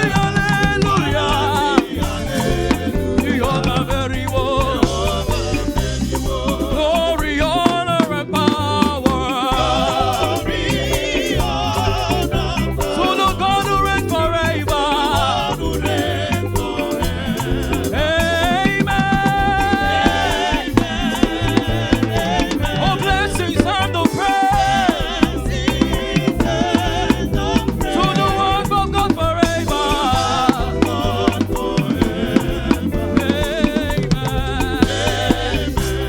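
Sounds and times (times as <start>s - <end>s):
gospel band playing: 0.0s - 36.0s
voices singing: 0.0s - 36.0s.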